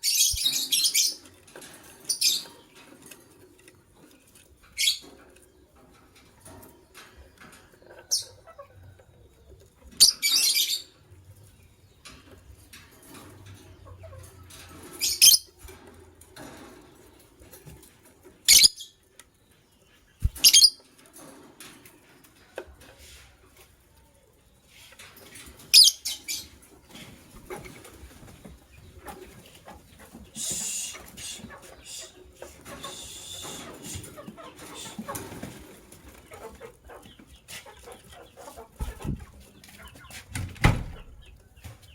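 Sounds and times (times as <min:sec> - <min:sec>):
lovebirds chirping: 0:00.0 - 0:01.2, 0:18.5 - 0:19.0, 0:19.8 - 0:20.8, 0:25.7 - 0:35.6.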